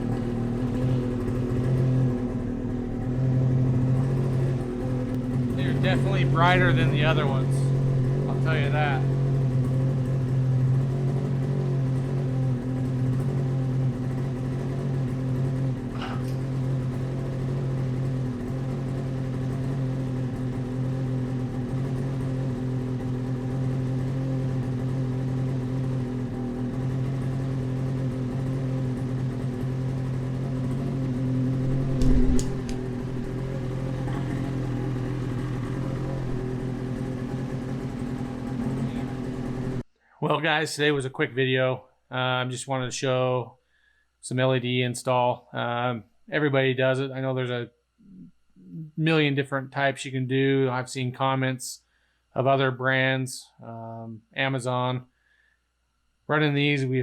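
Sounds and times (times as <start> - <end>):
snowmobile engine idling: 0.0 - 39.8
loud knock: 31.7 - 33.4.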